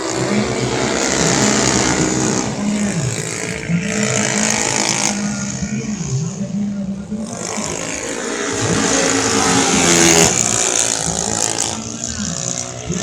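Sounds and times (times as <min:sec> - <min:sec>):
scooter engines revving high: 0:00.0 - 0:13.0.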